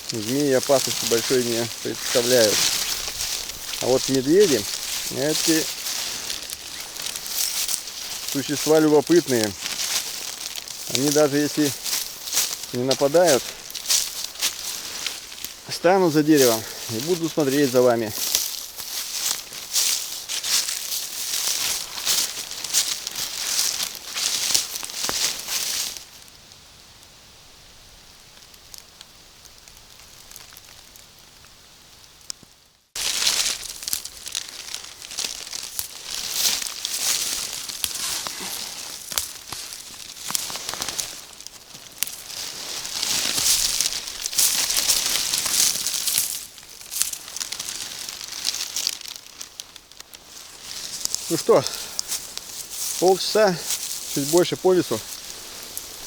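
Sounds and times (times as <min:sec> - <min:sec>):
leaves crunching underfoot: 0:00.0 - 0:26.3, 0:33.0 - 0:56.0
crinkling and crackling: 0:00.0 - 0:26.4, 0:28.3 - 0:56.0.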